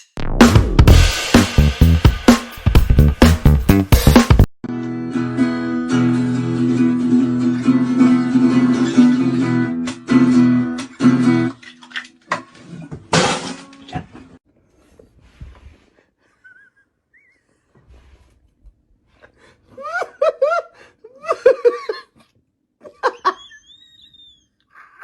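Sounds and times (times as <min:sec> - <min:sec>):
acoustic guitar strumming: 0:04.7 - 0:11.5.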